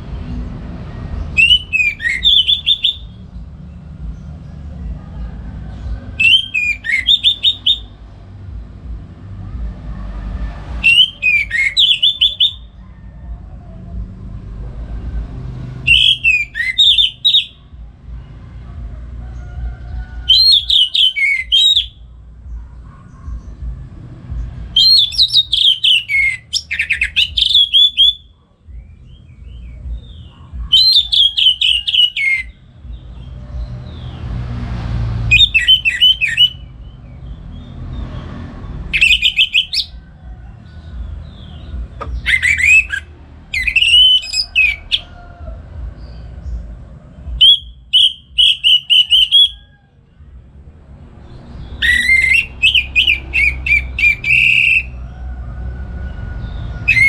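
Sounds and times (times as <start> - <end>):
thrush singing: 0.0 - 57.0
faint low rumble: 12.6 - 16.6, 28.2 - 31.9, 39.9 - 47.9.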